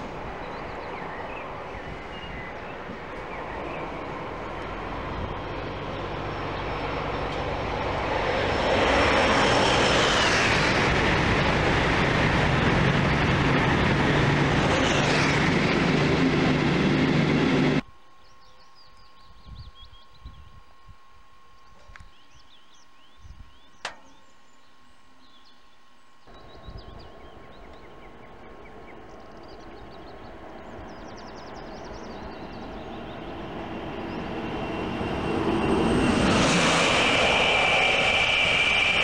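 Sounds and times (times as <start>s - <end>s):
high-speed train passing: 0.0s - 17.9s, 26.3s - 39.0s.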